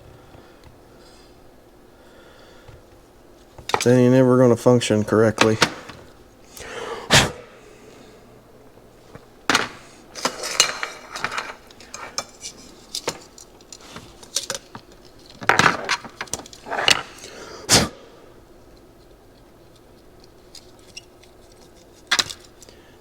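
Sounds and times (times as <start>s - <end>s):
metal parts and tools clinking: 9.5s - 15.5s.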